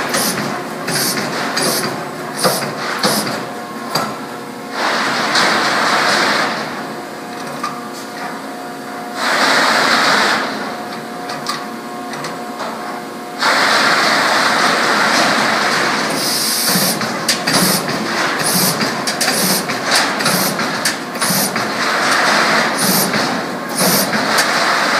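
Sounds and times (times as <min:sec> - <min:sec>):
machine hissing: 0:00.0 - 0:03.4, 0:16.0 - 0:24.9.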